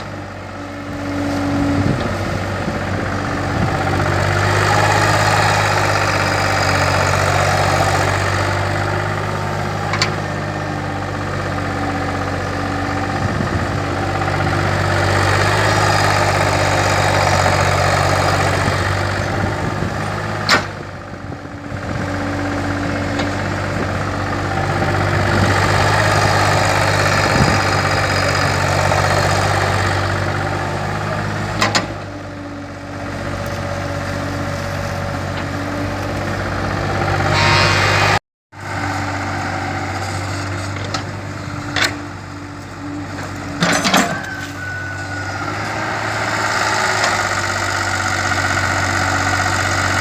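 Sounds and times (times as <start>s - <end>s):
excavator diesel engine running: 0.0s - 50.0s.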